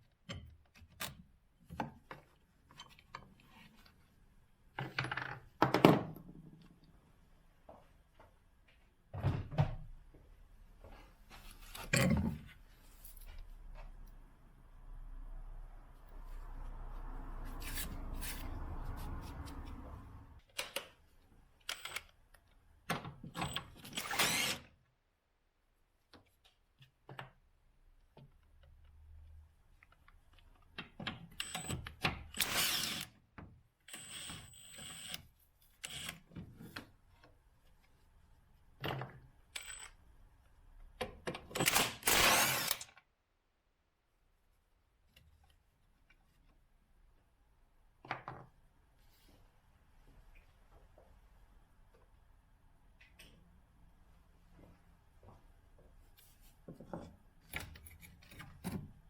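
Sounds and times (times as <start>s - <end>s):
power tool bursts: 24.0s - 24.6s, 41.6s - 42.9s.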